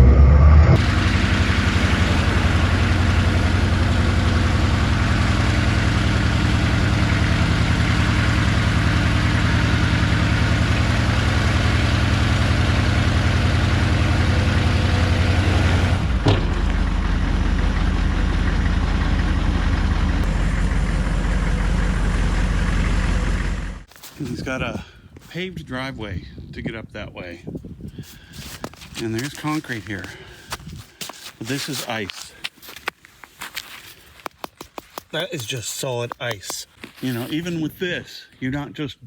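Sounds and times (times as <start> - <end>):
diesel engine running: 0.0 - 23.9.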